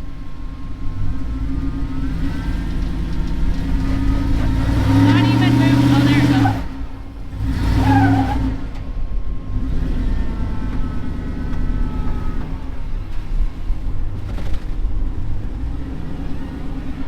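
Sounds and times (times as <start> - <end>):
truck engine running under load: 0.0 - 17.0.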